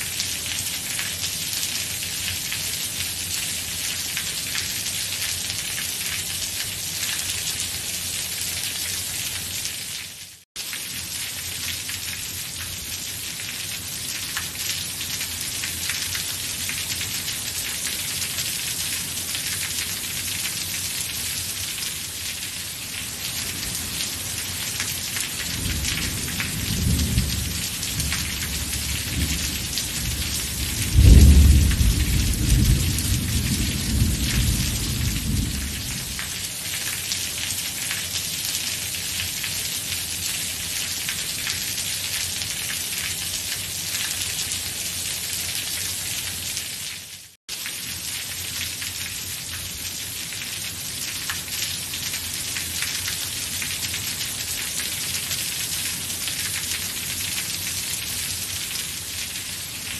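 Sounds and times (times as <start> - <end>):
steady rain falling: 0.0 - 59.9
thunder rumbling and clapping: 25.7 - 36.2.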